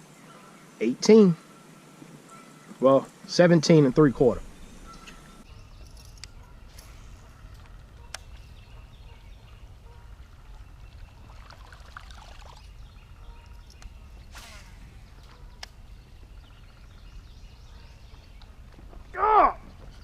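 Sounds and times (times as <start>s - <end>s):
birds singing: 0.0s - 20.0s
water trickling: 10.2s - 12.8s.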